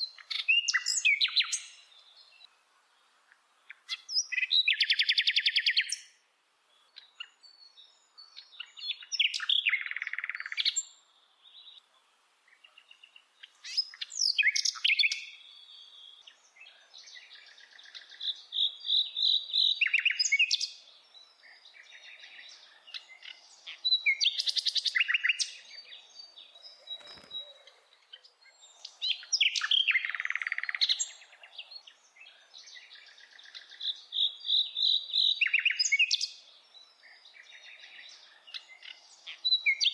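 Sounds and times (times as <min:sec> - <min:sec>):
bird chirping and trilling: 0:00.0 - 0:02.5, 0:06.9 - 0:11.0, 0:12.5 - 0:16.3, 0:17.0 - 0:39.9.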